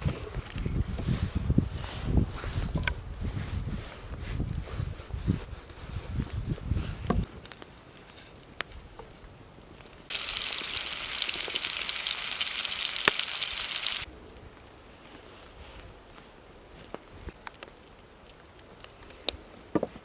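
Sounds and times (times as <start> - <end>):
food sizzling in a pan: 10.1 - 14.1.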